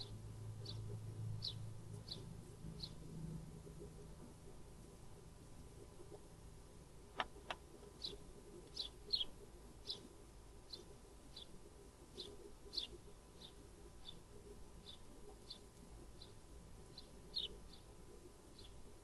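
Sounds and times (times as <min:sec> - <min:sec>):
small bird chirping: 0:00.0 - 0:03.0, 0:07.4 - 0:19.0.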